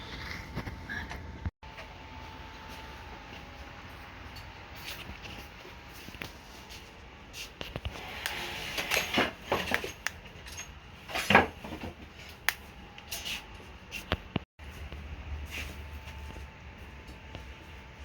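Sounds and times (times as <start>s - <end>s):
tools clattering: 8.8s - 12.4s.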